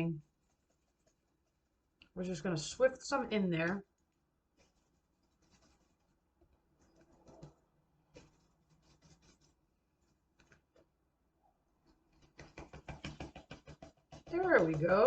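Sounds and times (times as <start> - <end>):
sifter clicking and tapping: 12.1 - 15.0.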